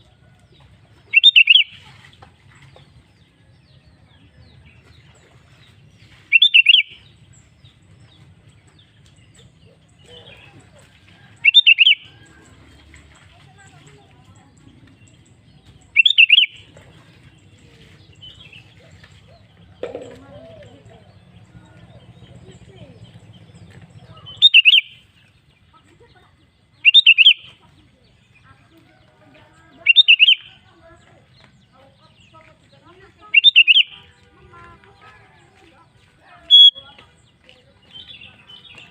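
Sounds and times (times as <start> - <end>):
bulbul singing: 1.0 - 1.9, 4.4 - 26.1, 26.7 - 28.5, 29.4 - 34.8, 36.3 - 38.9
faint bird calls: 29.7 - 30.6, 33.3 - 34.2, 36.4 - 37.0
bulbul singing phrase: 29.8 - 30.7, 33.3 - 34.1, 36.4 - 36.8.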